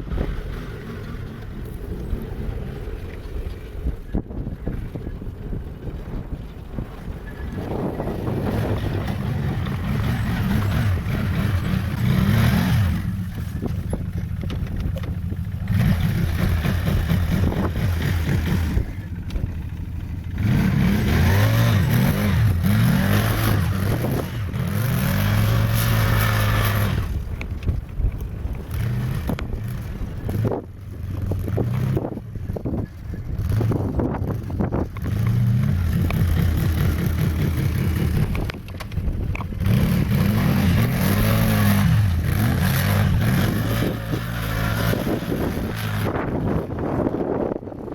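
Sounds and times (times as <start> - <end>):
atv engine revving: 0.0 - 47.9.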